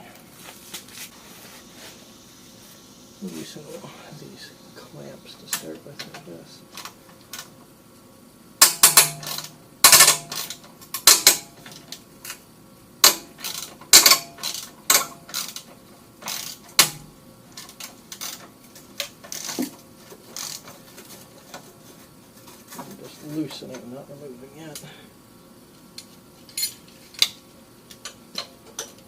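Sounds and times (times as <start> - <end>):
hand tools clanking on metal: 8.6 - 11.9, 26.4 - 27.3.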